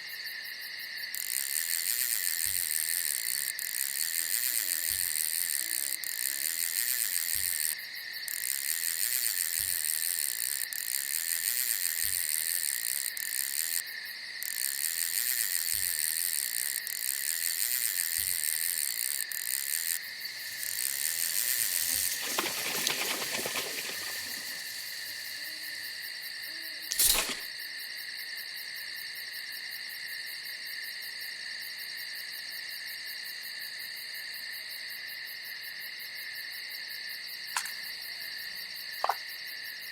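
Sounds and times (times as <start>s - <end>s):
night insects chirring: 0.0s - 39.9s
soft rustle: 20.1s - 26.0s
sharp click: 26.9s - 27.5s, 37.6s - 37.8s.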